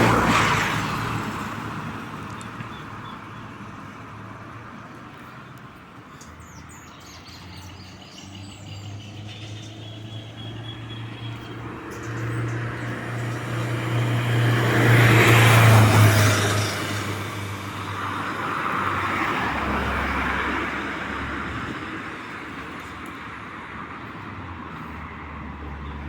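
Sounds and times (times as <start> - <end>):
car passing by: 0.0 - 2.7, 6.4 - 26.0
birds chirping: 2.2 - 14.6.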